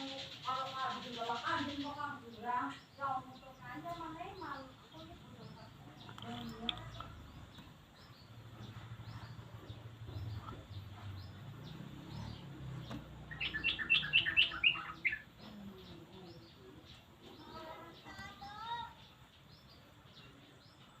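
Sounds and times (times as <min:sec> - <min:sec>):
faint high bird chirps: 0:00.0 - 0:21.0
bird singing bubbly chirps: 0:13.3 - 0:15.3.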